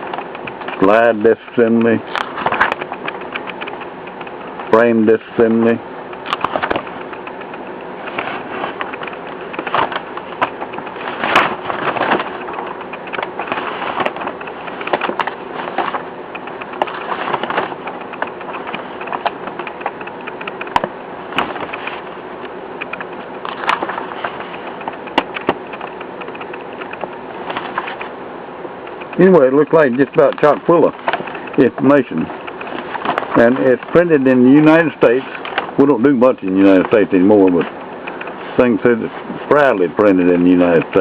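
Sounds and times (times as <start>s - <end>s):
book pages rustling: 0.0s - 28.2s, 28.9s - 41.0s
light clicks: 0.0s - 28.2s
steady background hum: 0.0s - 41.0s.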